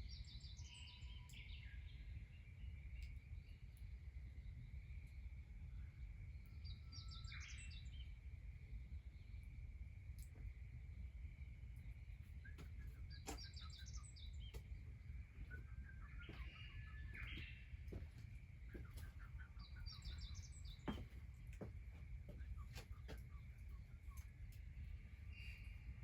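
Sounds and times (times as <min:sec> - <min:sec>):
small birds twittering: 0:11.8 - 0:26.0.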